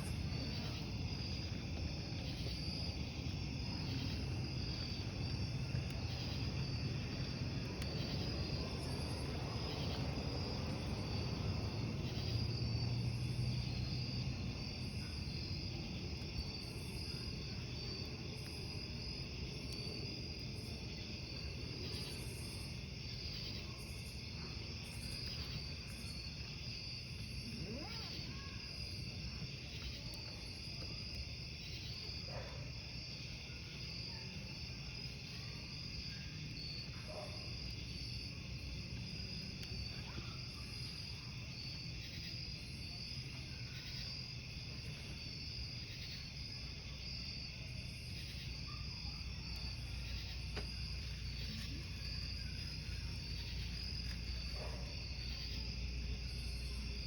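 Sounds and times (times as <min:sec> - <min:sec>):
campfire crackling: 0:00.0 - 0:57.0
crickets chirping: 0:00.0 - 0:57.0.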